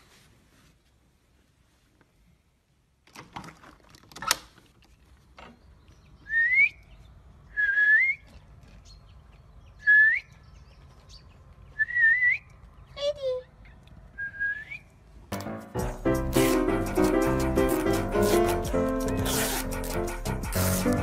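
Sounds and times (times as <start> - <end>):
person whistling: 6.3 - 6.8, 7.6 - 8.2, 11.8 - 12.5, 14.2 - 14.9.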